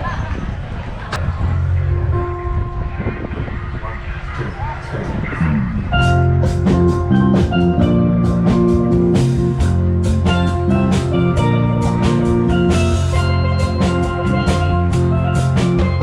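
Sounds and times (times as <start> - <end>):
bass guitar: 1.2 - 3.8, 4.4 - 16.0
guitar: 1.2 - 16.0
steel drums melody: 5.8 - 16.0
drum kit beat: 6.0 - 16.0.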